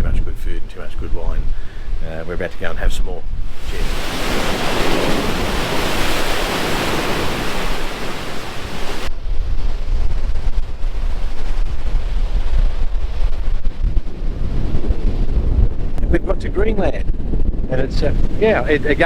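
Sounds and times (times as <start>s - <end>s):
wind buffeting microphone: 0.0s - 19.0s
sea rushing: 1.4s - 9.1s, 17.9s - 19.0s.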